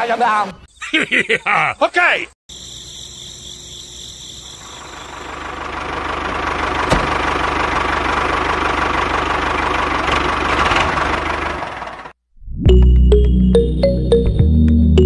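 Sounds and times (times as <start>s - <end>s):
crickets chirping: 0.6s - 6.2s
tractor engine running: 4.4s - 12.2s.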